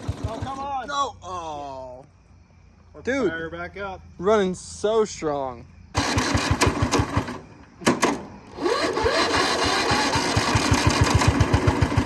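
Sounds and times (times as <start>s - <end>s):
lawn mower engine running: 0.0s - 0.8s, 5.9s - 12.0s.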